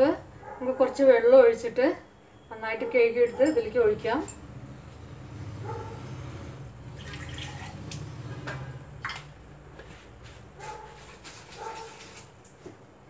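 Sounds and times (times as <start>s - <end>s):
water sloshing in jar: 6.8s - 9.9s.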